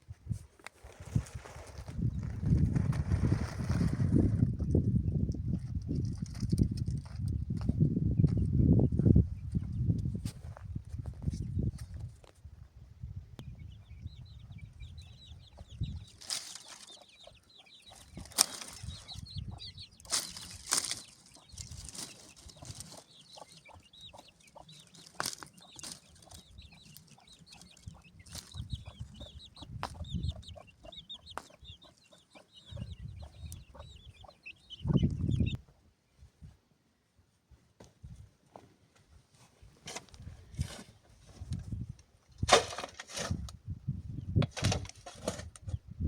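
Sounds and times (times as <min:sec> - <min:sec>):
birds chirping: 0:13.3 - 0:36.2.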